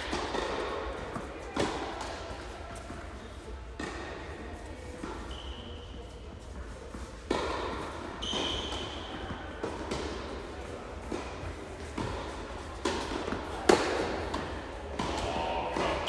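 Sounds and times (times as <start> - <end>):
tennis ball struck by rackets: 11.9 - 16.0.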